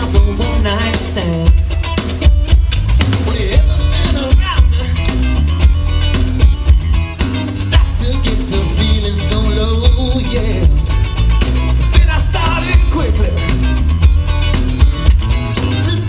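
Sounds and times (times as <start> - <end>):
person singing: 0.0 - 1.8, 3.1 - 5.4, 7.5 - 11.0, 11.9 - 13.7, 15.6 - 16.0
bass guitar: 0.0 - 16.0
drum kit beat: 0.0 - 16.0
electric guitar: 0.0 - 16.0.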